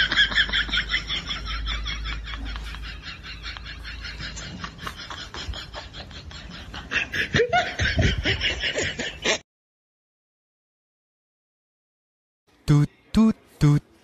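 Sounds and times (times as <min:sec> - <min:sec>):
person laughing: 0:00.0 - 0:09.4.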